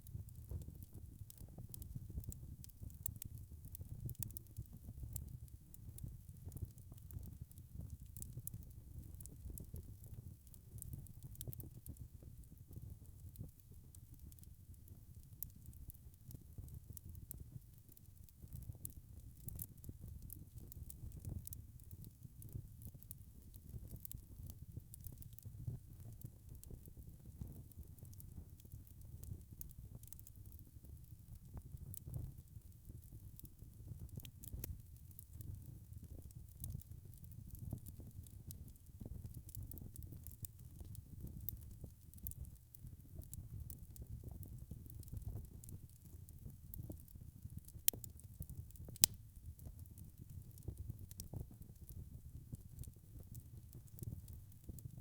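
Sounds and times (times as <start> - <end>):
burning logs crackling: 0.3 - 11.6, 16.3 - 52.0, 52.8 - 55.0
wood fire rumbling: 47.8 - 49.2.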